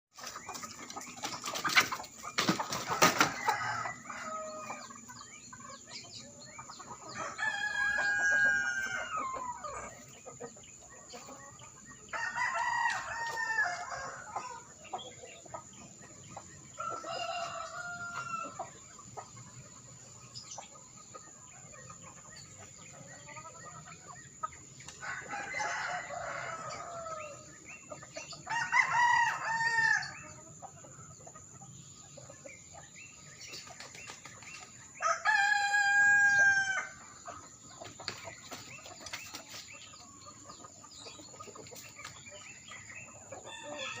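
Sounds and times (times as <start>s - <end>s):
rooster crowing: 7.2s - 9.5s, 25.0s - 27.4s, 28.5s - 30.2s, 35.0s - 37.0s.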